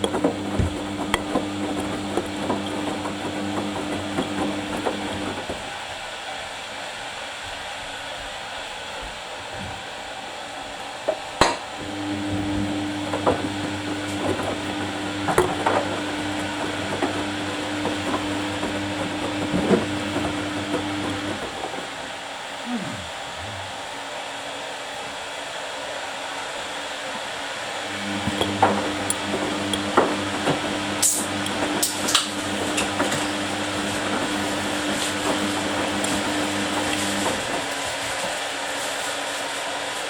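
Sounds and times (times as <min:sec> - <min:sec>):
washing machine drum motor humming: 0:00.0 - 0:05.8, 0:11.8 - 0:22.1, 0:27.9 - 0:37.8.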